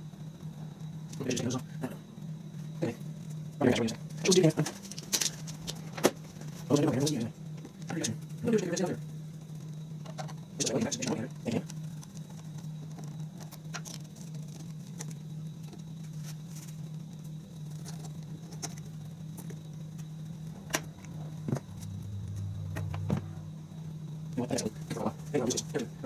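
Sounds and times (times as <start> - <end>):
steady low hum: 19.2 - 26.0
deeper hum: 20.3 - 24.8.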